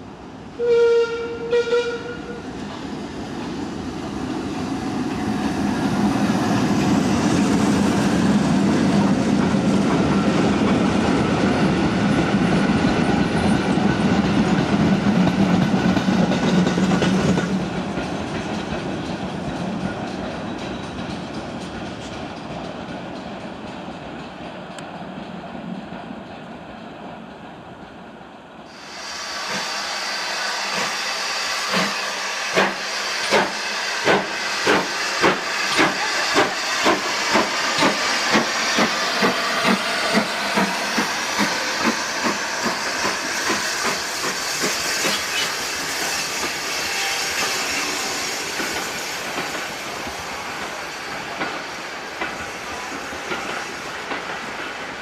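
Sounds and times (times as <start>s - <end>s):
steam hissing: 28.7s - 55.0s
steam locomotive chuffing: 28.7s - 55.0s.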